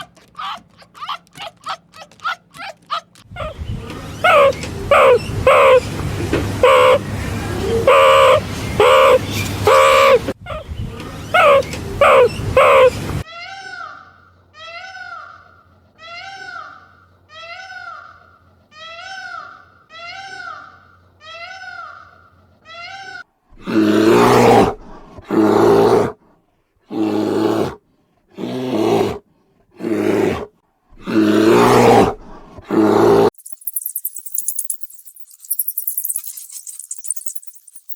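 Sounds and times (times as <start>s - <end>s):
harsh animal calls: 4.2s - 10.4s, 11.3s - 13.2s.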